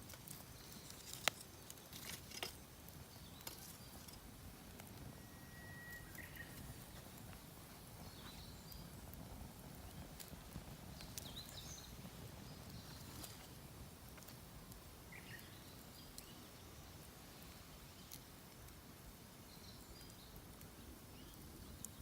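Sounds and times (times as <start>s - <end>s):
campfire crackling: 0.0s - 22.0s
bird calls: 5.1s - 7.1s.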